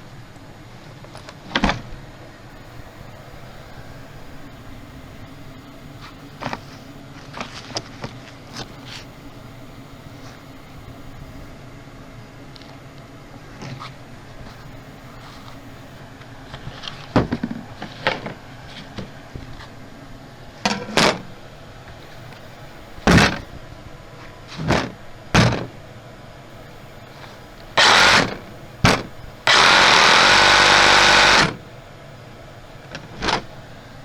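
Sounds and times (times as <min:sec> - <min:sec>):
loud steady noise: 0:02.5 - 0:07.0, 0:08.5 - 0:11.6, 0:14.5 - 0:16.0, 0:22.0 - 0:23.5, 0:26.5 - 0:34.0
short scraping bursts: 0:27.1 - 0:31.6.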